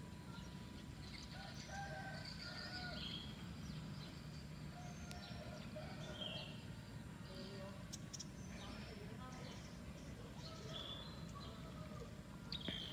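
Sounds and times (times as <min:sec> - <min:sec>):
steady low background hum: 0:00.0 - 0:12.9
higher bird chirps: 0:12.4 - 0:12.9.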